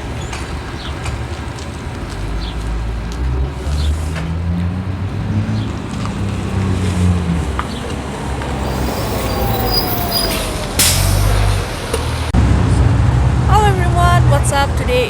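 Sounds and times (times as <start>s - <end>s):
vehicle engines passing: 0.0s - 15.0s
falling whine: 8.2s - 12.8s
short loud hiss: 8.6s - 11.5s.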